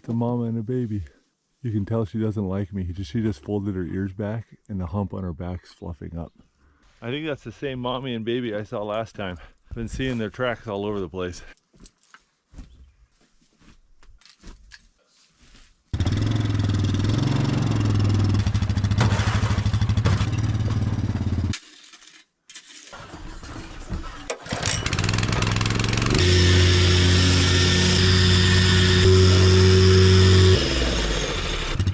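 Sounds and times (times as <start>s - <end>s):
small engine running: 16.0s - 18.7s, 24.5s - 31.9s.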